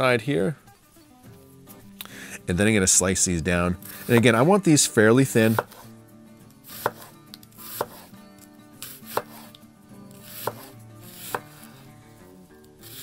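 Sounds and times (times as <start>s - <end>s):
knife chopping on wooden board: 4.0s - 4.4s, 5.4s - 5.9s, 6.7s - 8.1s, 9.1s - 9.6s, 10.3s - 11.7s.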